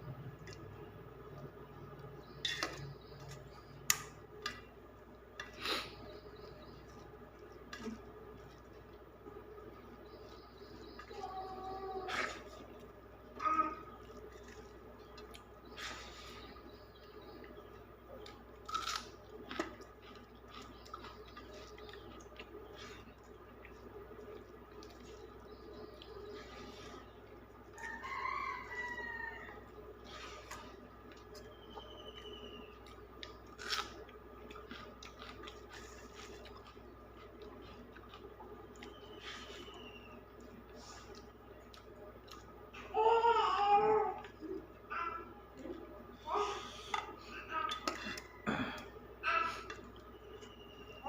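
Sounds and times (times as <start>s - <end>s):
chewing food: 16.5s - 42.7s
crunchy bites: 18.3s - 22.1s, 33.2s - 35.8s.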